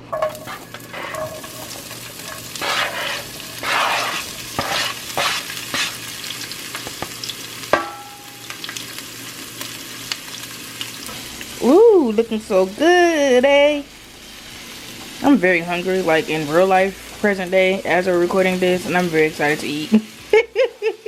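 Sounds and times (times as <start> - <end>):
vegetables sizzling in a frying pan: 0.0 - 21.0.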